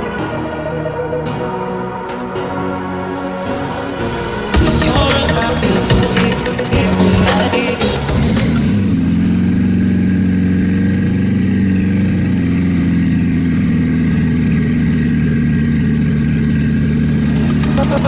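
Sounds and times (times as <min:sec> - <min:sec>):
sports car engine running: 0:04.6 - 0:18.0.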